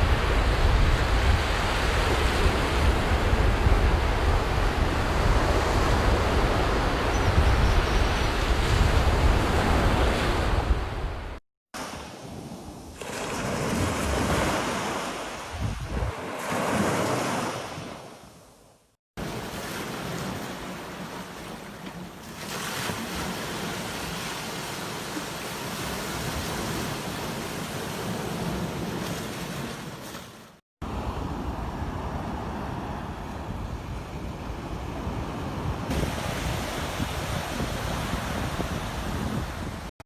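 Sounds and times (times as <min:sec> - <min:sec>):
ocean waves breaking: 0:08.1 - 0:18.3, 0:19.2 - 0:40.0.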